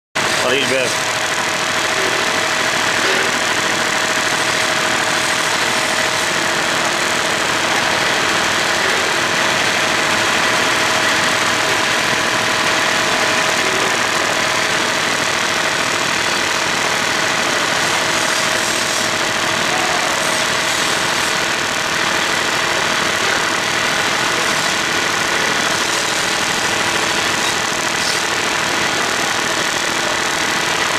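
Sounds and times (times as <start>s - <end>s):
engine idling: 0.2s - 30.9s.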